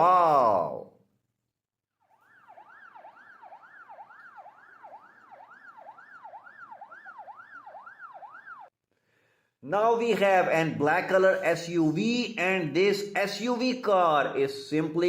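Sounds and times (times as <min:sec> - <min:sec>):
electronic siren whooping: 0:02.0 - 0:08.7.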